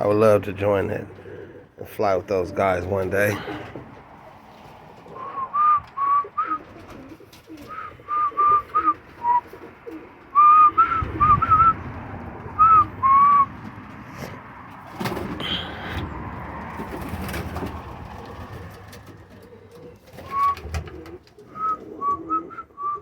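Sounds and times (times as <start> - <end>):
pigeons cooing: 0.0 - 23.0
pigeons peeping: 0.0 - 23.0.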